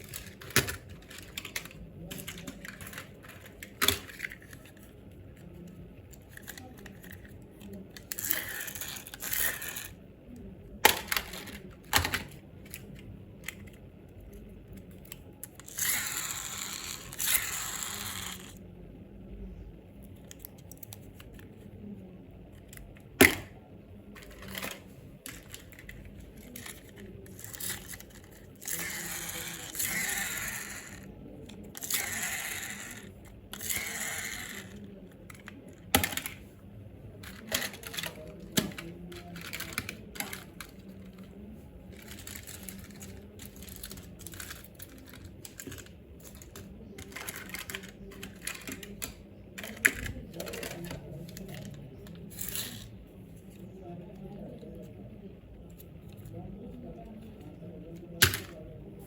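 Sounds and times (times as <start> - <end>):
packaging crinkling and rustling: 37.2 - 52.6.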